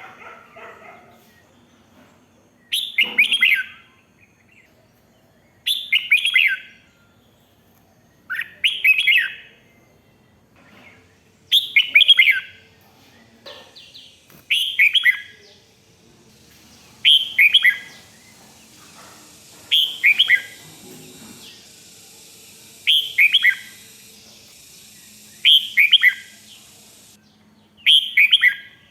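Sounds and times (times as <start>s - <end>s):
bird singing falling whistled notes: 14.4s - 15.4s, 16.6s - 18.4s, 19.7s - 20.6s, 21.3s - 27.1s.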